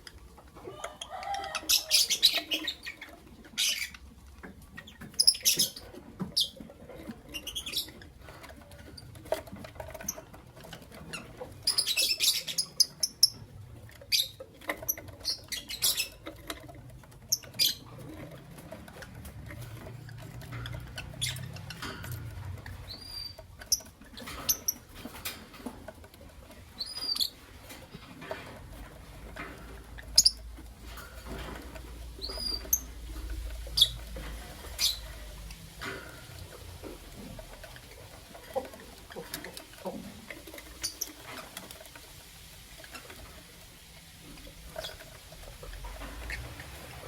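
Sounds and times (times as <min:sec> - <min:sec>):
lovebirds chirping: 0:00.7 - 0:06.6, 0:11.1 - 0:16.4, 0:17.2 - 0:18.0, 0:22.6 - 0:24.8, 0:26.8 - 0:27.4, 0:29.9 - 0:30.6, 0:32.1 - 0:35.5, 0:39.1 - 0:41.3.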